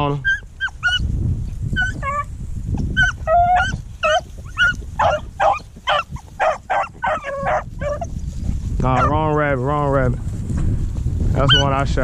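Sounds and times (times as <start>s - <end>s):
dogs yelping barks: 0.2s - 1.1s, 1.8s - 8.2s, 8.9s - 9.2s, 11.4s - 11.7s.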